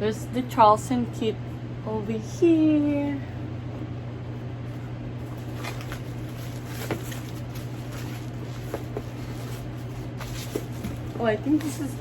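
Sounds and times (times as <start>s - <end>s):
steady low hum: 0.0s - 12.0s
handbag rustling: 5.2s - 12.0s.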